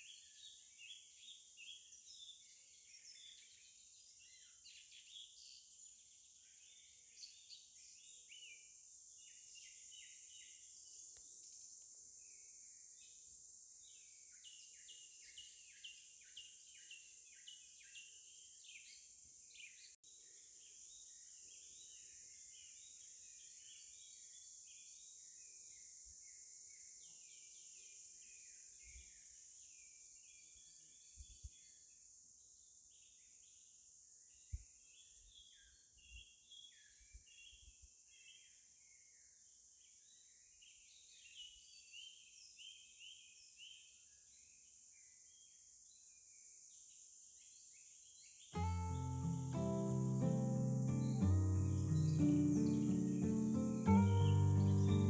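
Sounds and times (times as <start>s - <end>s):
small birds chirping: 0.0s - 32.0s, 34.3s - 55.0s
steady high hiss: 48.6s - 55.0s.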